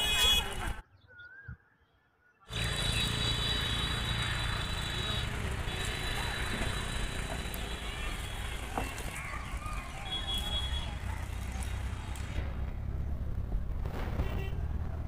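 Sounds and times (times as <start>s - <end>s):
train coaches rumbling on track: 4.4s - 13.1s.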